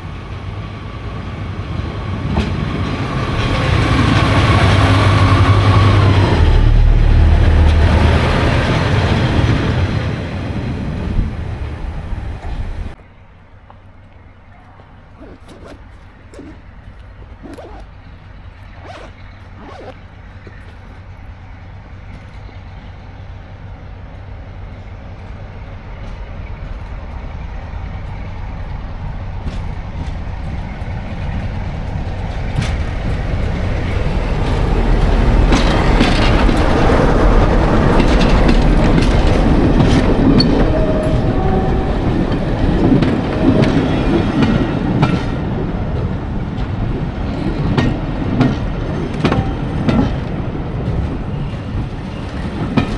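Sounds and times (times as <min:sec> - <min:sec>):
diesel train passing: 0:00.0 - 0:15.2, 0:15.8 - 0:52.9
train wheels clattering over rail joints: 0:28.0 - 0:52.9.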